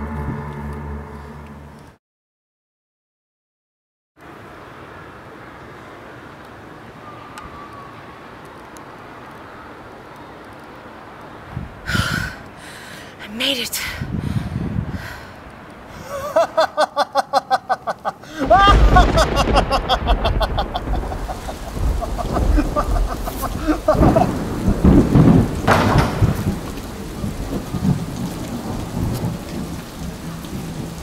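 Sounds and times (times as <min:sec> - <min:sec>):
heavy rain: 0:04.2 - 0:31.0
thunder clap and rumbling: 0:18.3 - 0:31.0.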